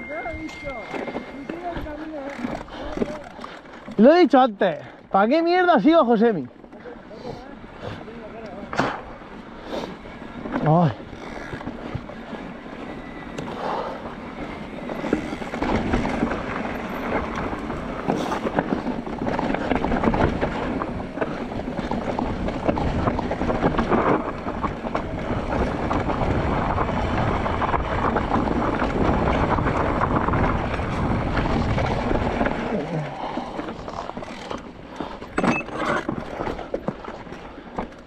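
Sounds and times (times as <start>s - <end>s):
bike rattling over bumps: 0.0s - 38.0s
tyres on dirt and stones: 0.0s - 38.0s
wind buffeting microphone: 8.9s - 38.0s.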